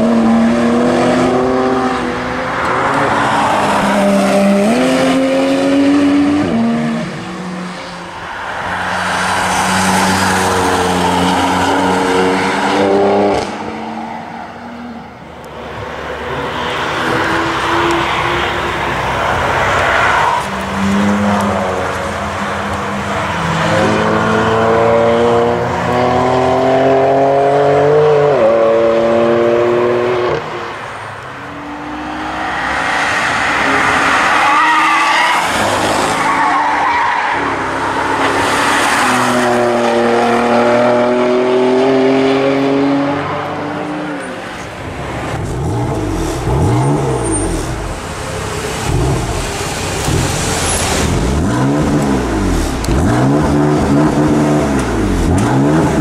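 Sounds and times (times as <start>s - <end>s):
car engine accelerating hard: 20.8s - 30.4s, 45.2s - 56.0s.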